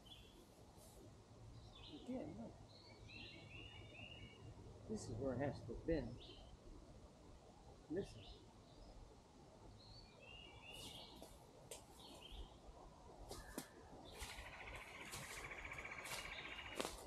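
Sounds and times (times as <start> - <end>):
bird chirps: 1.6 - 4.5, 9.8 - 11.3, 13.3 - 17.0
bird trill: 13.4 - 17.0.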